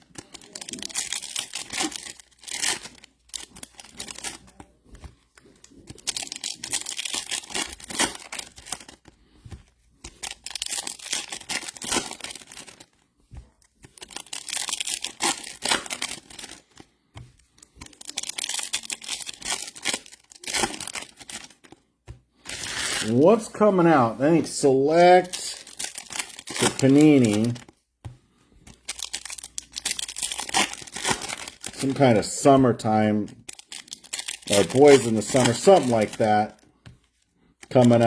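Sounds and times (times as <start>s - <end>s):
foil wrappers tearing and crinkling: 0.0s - 16.9s, 17.5s - 27.8s, 28.7s - 38.0s.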